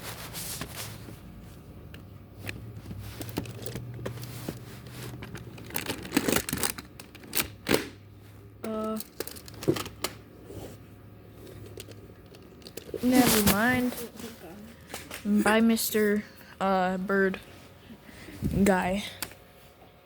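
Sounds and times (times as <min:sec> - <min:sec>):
crinkling and rustling: 0:00.0 - 0:07.8, 0:08.7 - 0:10.8, 0:11.4 - 0:15.3.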